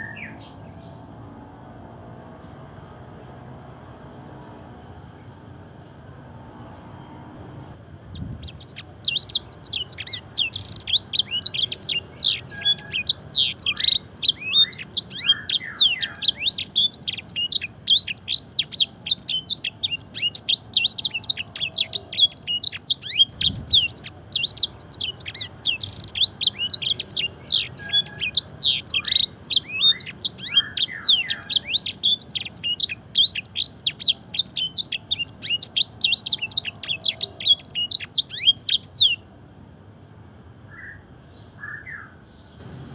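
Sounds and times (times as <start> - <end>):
canary singing fast trills: 0.0 - 1.0, 8.2 - 39.3.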